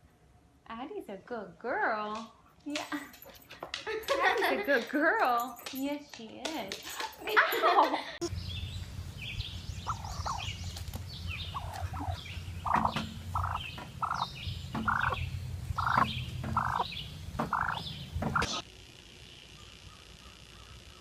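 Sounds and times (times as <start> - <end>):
steady low hum: 8.2 - 21.0
high bird chirps: 8.3 - 18.6
short bird calls: 8.4 - 18.6.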